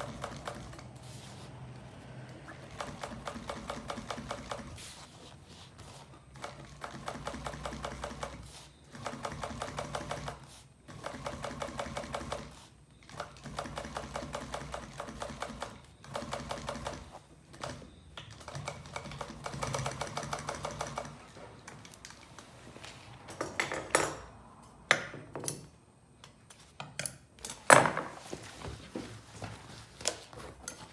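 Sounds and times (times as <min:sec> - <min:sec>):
sewing machine stitching: 0:00.0 - 0:05.1, 0:05.8 - 0:21.4.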